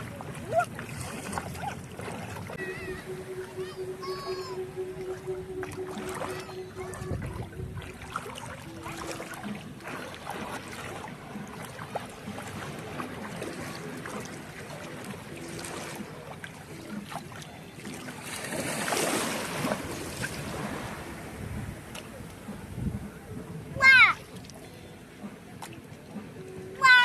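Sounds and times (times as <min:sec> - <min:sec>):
sea surf washing on shore: 0:00.0 - 0:27.0
wind buffeting microphone: 0:02.4 - 0:09.8, 0:19.1 - 0:24.4.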